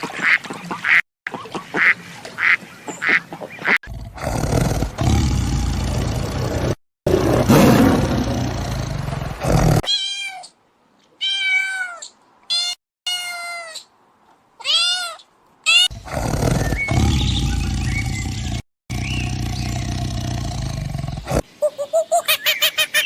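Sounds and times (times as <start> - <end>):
rough roar-like noise: 3.9 - 9.8, 15.9 - 21.4
cat meowing: 11.2 - 13.8.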